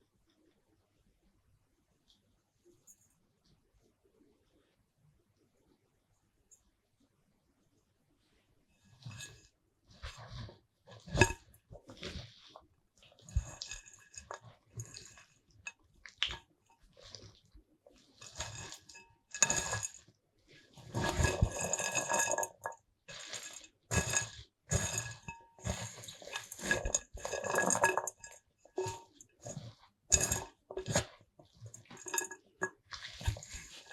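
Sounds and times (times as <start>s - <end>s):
utensil scraping: 20.7s - 33.9s
utensils and dishes clinking: 21.0s - 31.1s.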